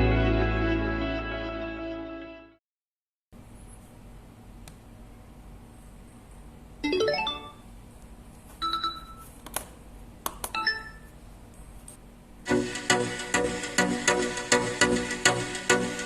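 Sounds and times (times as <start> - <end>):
music through a soundbar: 12.5 - 16.0.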